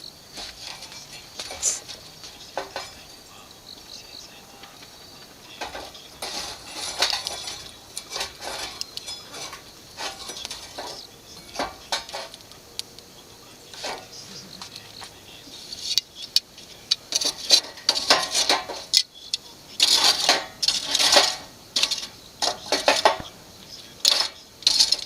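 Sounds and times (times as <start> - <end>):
cookware clinking together: 0.6 - 3.4, 5.4 - 12.5, 15.6 - 23.3, 23.9 - 25.0.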